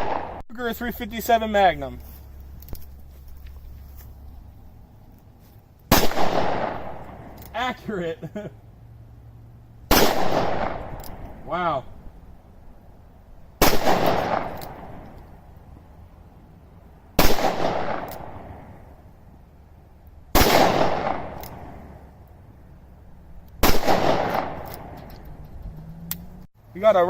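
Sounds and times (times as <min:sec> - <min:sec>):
gunshots with echo: 0:00.0 - 0:00.4, 0:05.9 - 0:07.2, 0:09.9 - 0:11.0, 0:13.6 - 0:15.0, 0:17.2 - 0:18.6, 0:20.4 - 0:21.8, 0:23.6 - 0:25.0.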